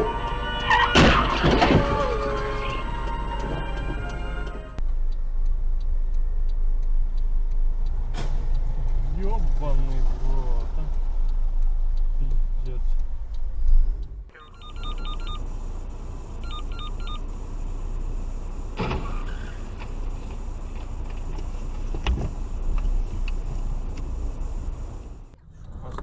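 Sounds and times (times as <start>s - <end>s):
car road and engine noise: 0.0s - 26.0s
short electronic beeps: 14.3s - 15.8s, 16.4s - 17.6s.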